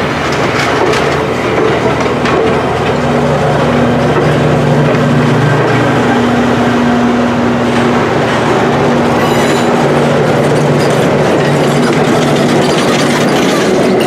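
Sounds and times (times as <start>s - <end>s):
locomotive engine drone: 0.0s - 14.0s
wheels rumbling on rails: 0.0s - 14.0s
high wheel squeal: 8.4s - 14.0s.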